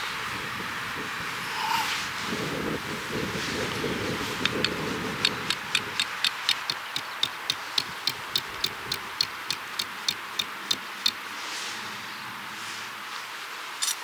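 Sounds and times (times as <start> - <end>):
rapid sharp clicks: 4.4 - 11.2.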